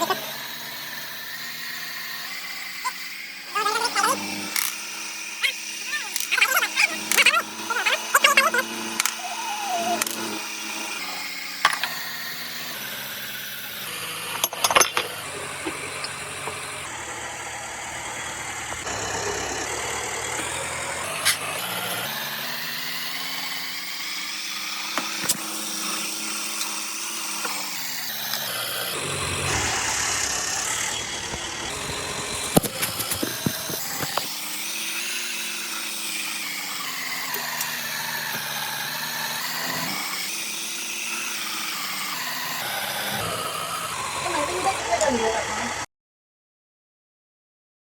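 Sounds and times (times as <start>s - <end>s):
car engine revving: 28.4s - 33.9s.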